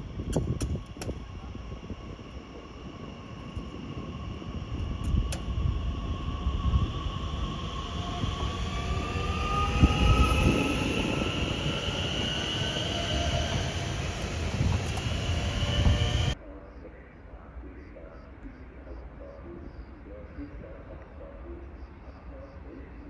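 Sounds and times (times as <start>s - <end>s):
high whining tones: 0.0s - 16.4s
train rumble on rails: 0.0s - 16.4s.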